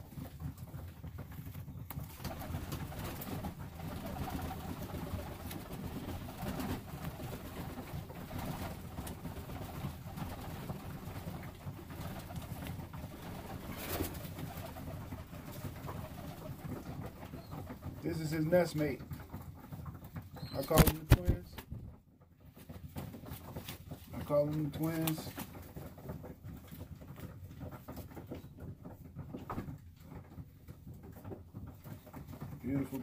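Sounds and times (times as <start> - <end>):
pigeons cooing: 2.2 - 17.8.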